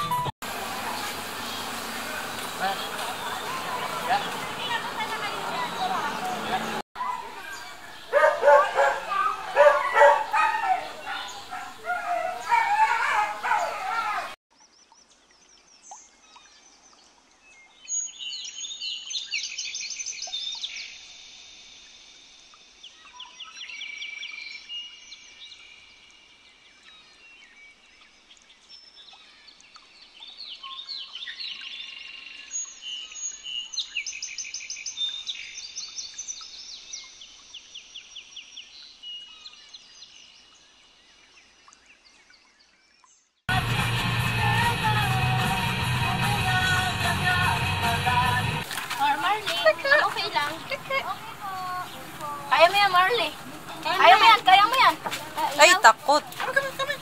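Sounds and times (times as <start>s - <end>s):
birds chirping and trilling: 0.0s - 43.4s, 46.7s - 57.0s.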